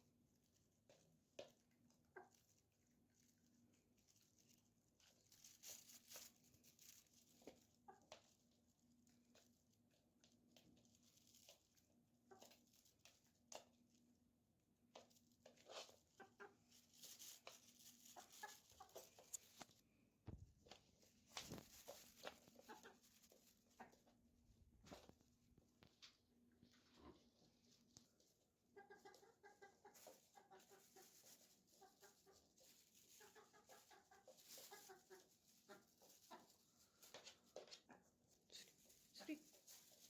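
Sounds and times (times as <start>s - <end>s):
chicken clucking: 0.9s - 8.5s, 12.2s - 13.7s, 15.5s - 19.7s, 21.6s - 25.2s, 26.0s - 39.3s
light taps and scratches: 14.8s - 24.2s.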